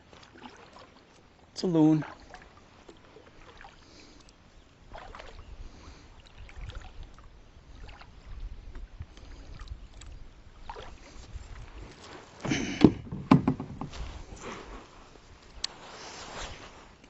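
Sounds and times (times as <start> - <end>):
water lapping against a kayak: 0.0 - 17.0
light knocks: 12.4 - 14.1.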